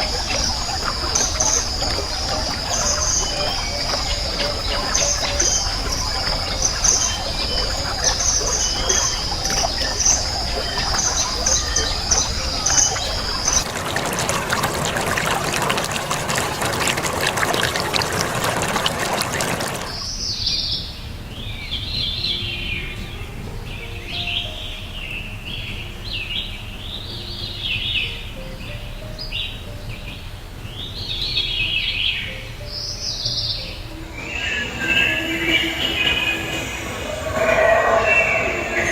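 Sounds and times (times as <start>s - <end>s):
birds calling in falling chirps: 0.0s - 38.9s
high trilling: 33.3s - 38.9s
hiss: 33.9s - 38.9s.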